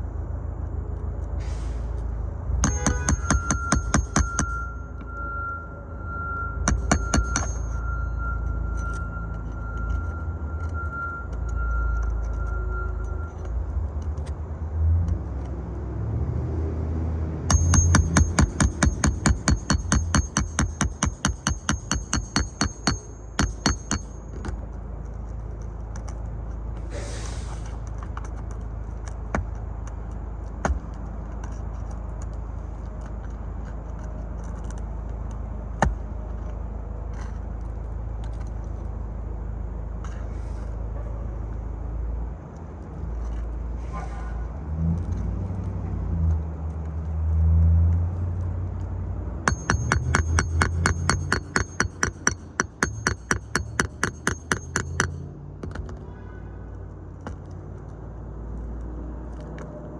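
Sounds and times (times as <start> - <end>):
rapid hammer strikes: 2.6 - 4.6, 6.7 - 7.8, 17.5 - 24.6, 49.5 - 55.9
clicks and scrapes: 6.7 - 15.6, 27.5 - 39.0, 42.5 - 56.2.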